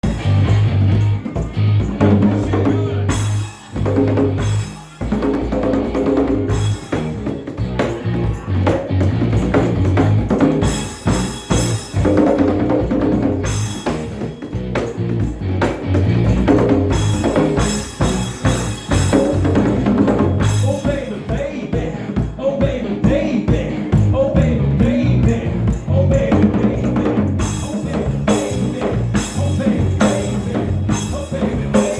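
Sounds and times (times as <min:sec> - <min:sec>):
pulsing low bass line: 0:00.0 - 0:04.6
drum kit kick and snare: 0:00.0 - 0:31.9
live rock band playing: 0:00.0 - 0:31.9.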